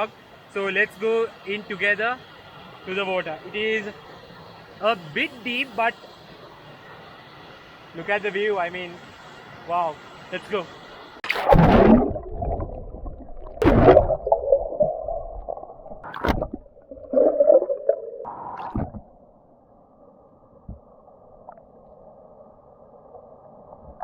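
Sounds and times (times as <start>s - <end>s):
muffled rush of flowing water: 0.0s - 24.0s
loud water sloshes: 11.2s - 15.2s
splashing and gurgling stream water: 11.2s - 19.2s.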